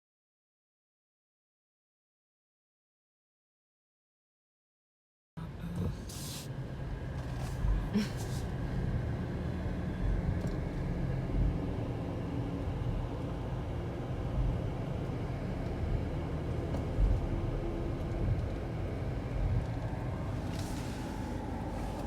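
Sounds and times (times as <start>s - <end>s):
low rumble: 6.8s - 22.0s.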